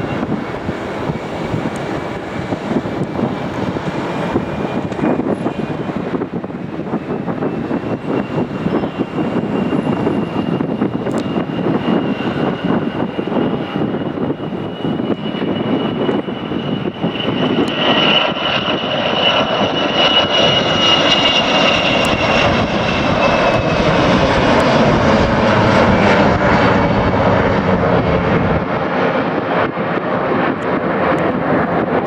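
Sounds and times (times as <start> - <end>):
high jet whine: 0.0 - 32.0
jet engine rumble: 0.0 - 32.0.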